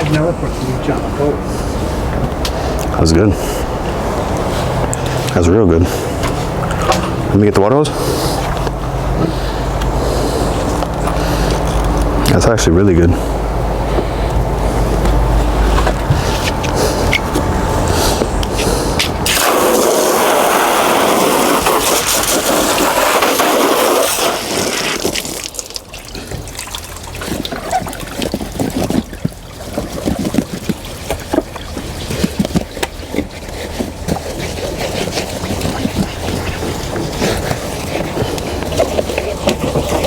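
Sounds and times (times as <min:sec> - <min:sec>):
water hose spraying: 0:14.2 - 0:40.0
water splashes and drips: 0:19.2 - 0:40.0.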